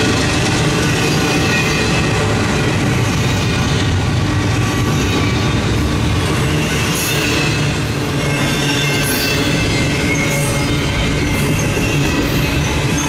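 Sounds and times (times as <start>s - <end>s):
train wheels rumbling on rails: 0.0s - 13.0s
high wheel squeal: 6.4s - 13.0s.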